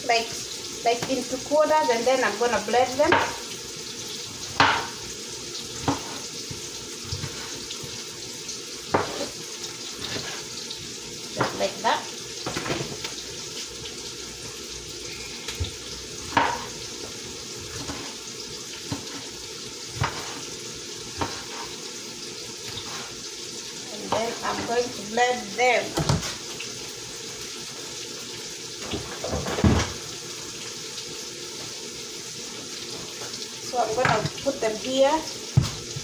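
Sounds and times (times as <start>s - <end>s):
onions sizzling in oil: 0.0s - 36.0s
knife knocking on cutting board: 35.6s - 35.8s.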